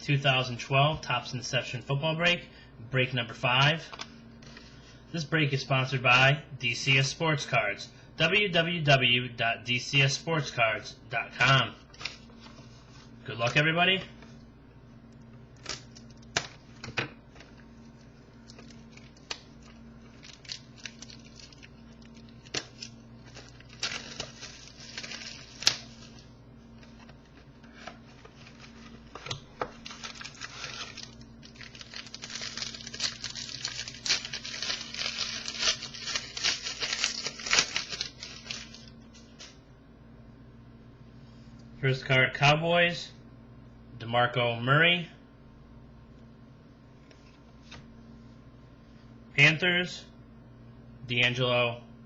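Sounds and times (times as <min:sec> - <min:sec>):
plastic wrapping tearing and crinkling: 0:15.6 - 0:39.6.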